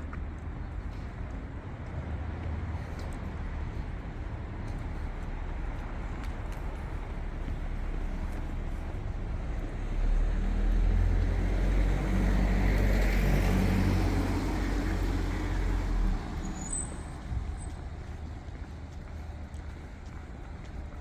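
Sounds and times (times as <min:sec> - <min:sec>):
city traffic noise: 0:00.0 - 0:21.0.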